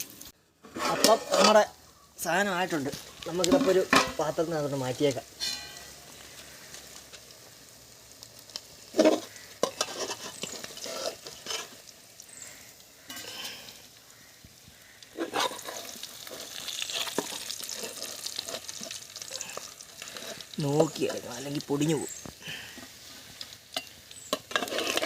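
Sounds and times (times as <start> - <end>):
fish sizzling in hot oil: 0.0 - 25.0
spatula scraping a pan: 0.6 - 1.8, 5.4 - 7.3, 8.8 - 13.8, 15.0 - 21.4, 22.1 - 25.0.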